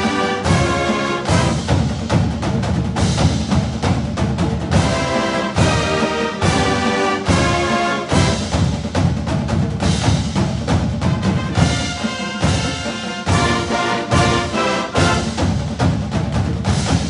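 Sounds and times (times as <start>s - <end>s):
orchestral music with brass: 0.0s - 17.0s
timpani: 0.0s - 17.0s.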